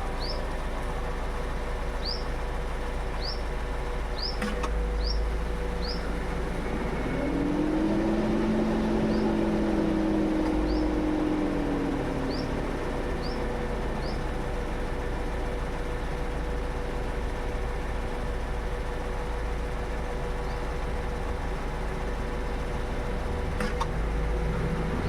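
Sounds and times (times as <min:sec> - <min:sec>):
low hum rising in pitch: 0:05.0 - 0:15.1.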